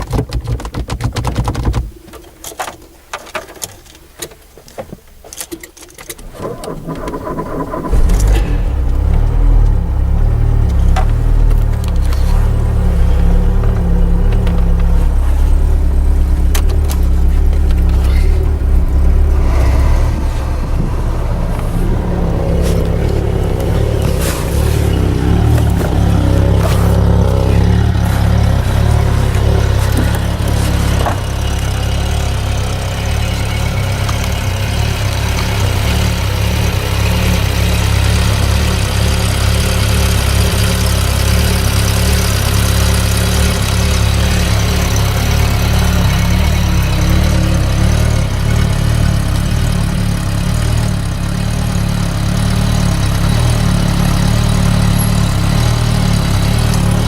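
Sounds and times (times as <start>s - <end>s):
car engine idling: 6.2s - 57.0s.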